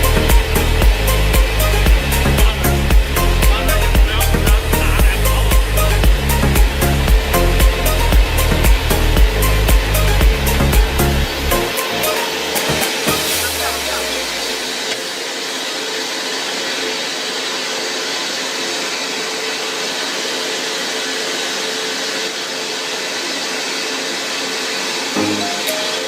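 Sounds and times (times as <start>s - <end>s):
machine whirring hiss: 0.0s - 26.0s
steady machine hum: 0.0s - 26.0s.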